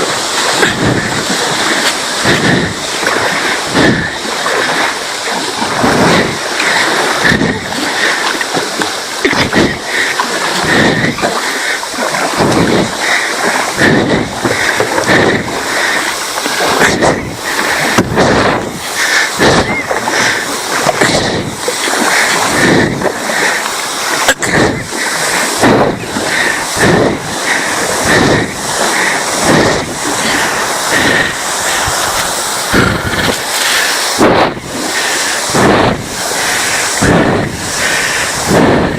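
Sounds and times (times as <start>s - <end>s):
river water rushing: 0.0s - 38.9s
water splashes: 0.0s - 38.9s.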